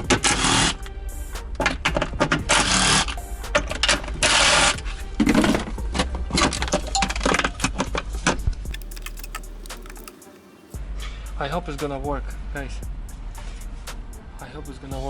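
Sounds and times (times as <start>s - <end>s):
metallic clicks of tools: 8.7s - 10.8s.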